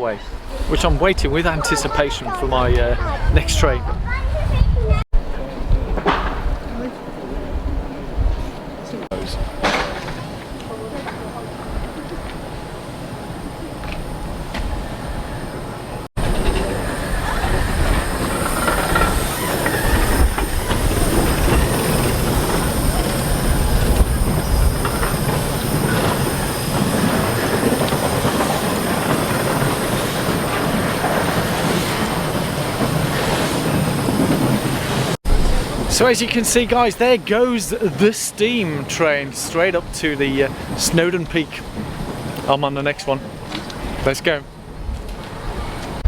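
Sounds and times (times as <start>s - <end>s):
steam train moving off: 5.2s - 46.0s
wheels squealing on track: 14.8s - 36.0s.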